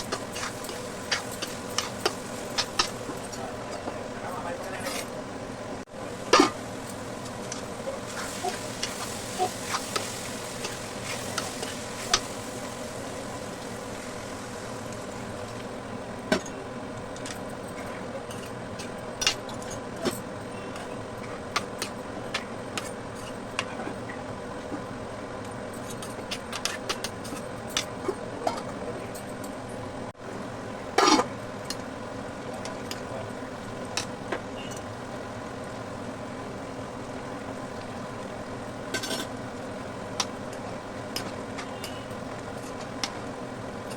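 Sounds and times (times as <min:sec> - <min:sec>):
utensil scraping pan: 0:00.0 - 0:03.0
curry sizzling in a pan: 0:00.0 - 0:04.0, 0:05.9 - 0:16.2.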